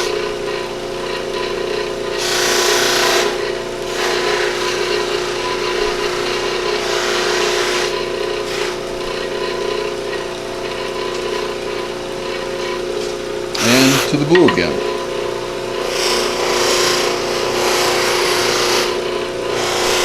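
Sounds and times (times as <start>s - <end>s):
buffing wheel running: 0.0s - 20.0s
antler rubbing on buffing wheel: 13.6s - 14.8s.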